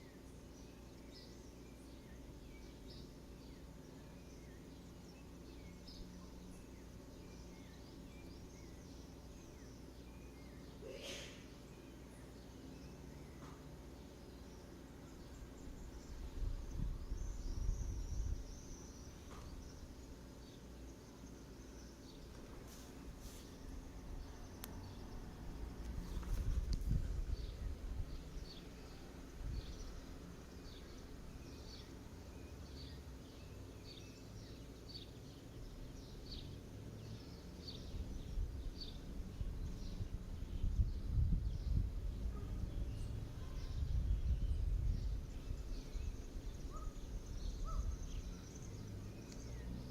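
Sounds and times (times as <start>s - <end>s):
bird chirping: 0.0s - 49.9s
low rumble on microphone: 15.2s - 20.6s, 22.0s - 31.9s, 37.0s - 49.9s.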